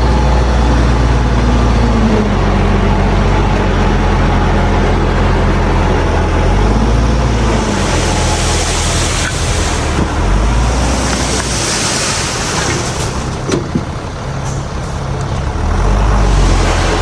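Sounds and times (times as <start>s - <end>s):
diesel machinery rumbling: 0.0s - 17.0s.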